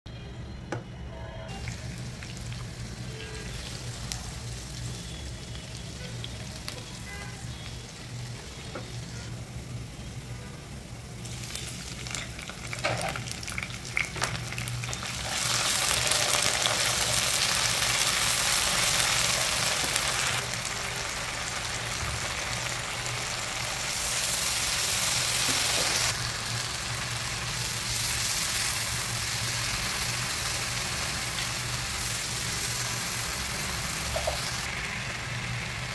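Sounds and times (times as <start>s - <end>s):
food frying in hot oil: 1.5s - 35.9s.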